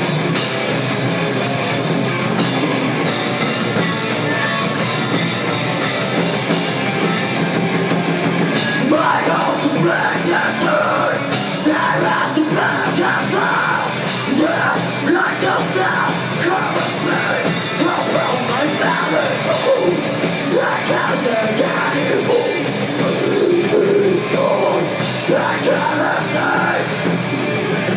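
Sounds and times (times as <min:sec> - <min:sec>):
rock band playing live: 0:00.0 - 0:27.9
singer's voice: 0:08.6 - 0:27.2.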